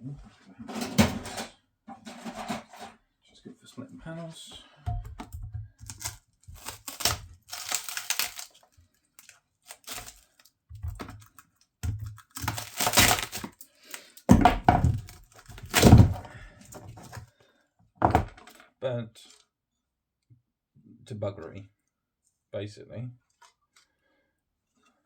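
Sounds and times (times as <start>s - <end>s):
panels cracking and thunking: 0.7s - 2.9s, 4.9s - 17.3s.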